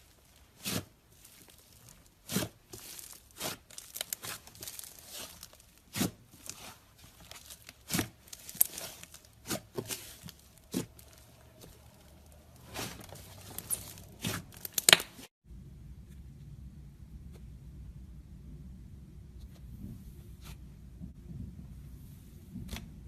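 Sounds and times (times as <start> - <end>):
slime crackling and popping: 0.0 - 15.3.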